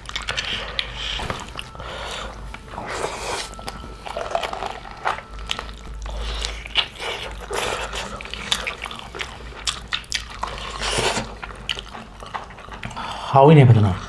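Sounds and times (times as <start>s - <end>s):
chewing and biting: 0.0s - 13.2s.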